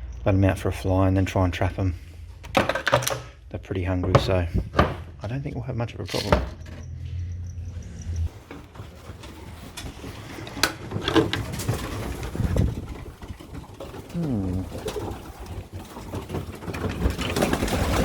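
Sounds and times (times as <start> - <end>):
pigeons cooing: 11.5 - 18.0.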